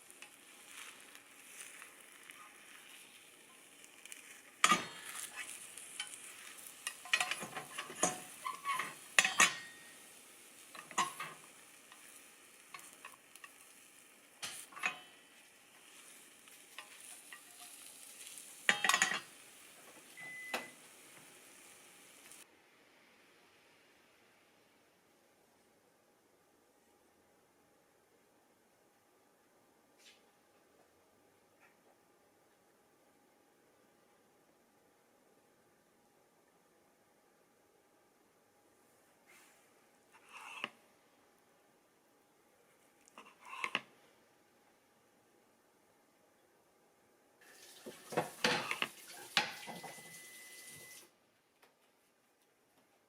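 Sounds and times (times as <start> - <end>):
food sizzling in a frying pan: 0.0 - 22.5, 47.4 - 51.1
utensil scraping a pan: 3.8 - 13.8, 14.4 - 19.5, 39.3 - 40.8, 43.1 - 43.9, 47.9 - 50.0.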